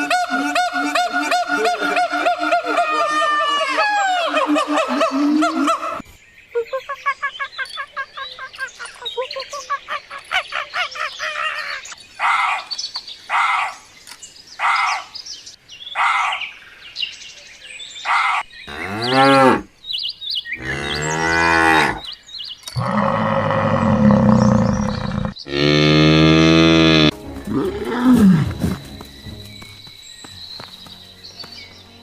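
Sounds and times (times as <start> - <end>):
animal calls: 0.0 - 6.0.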